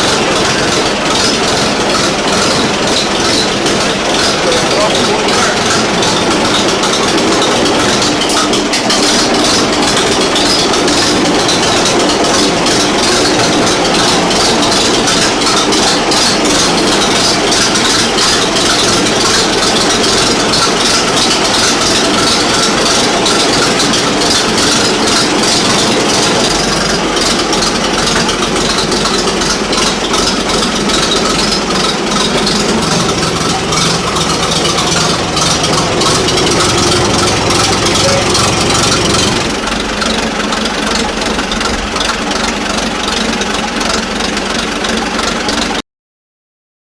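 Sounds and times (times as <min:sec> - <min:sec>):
tractor engine rattling: 0:00.0 - 0:45.8
deep low hum: 0:30.9 - 0:39.6.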